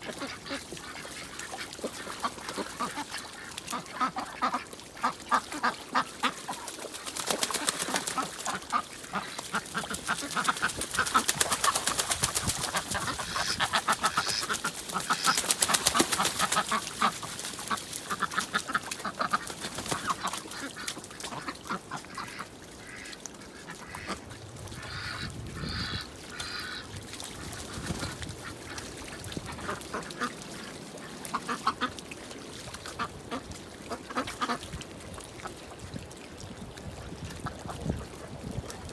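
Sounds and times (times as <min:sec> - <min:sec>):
ducks quacking: 0:00.0 - 0:32.0, 0:32.9 - 0:34.7.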